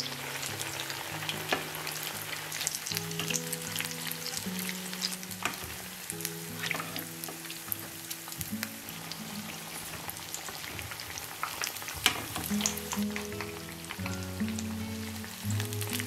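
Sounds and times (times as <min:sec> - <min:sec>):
oil sizzling and popping: 0:00.0 - 0:16.0.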